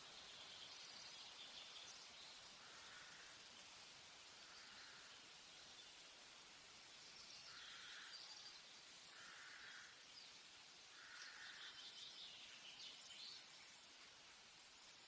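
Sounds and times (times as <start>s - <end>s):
steady high hiss: 0.0s - 15.0s
birds calling: 7.4s - 10.0s, 11.0s - 13.4s.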